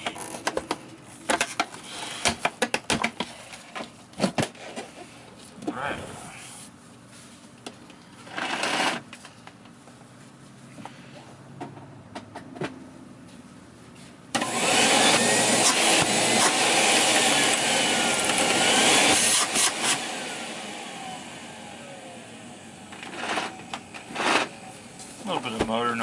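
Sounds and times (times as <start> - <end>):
vacuum cleaner motor running: 14.4 - 25.0.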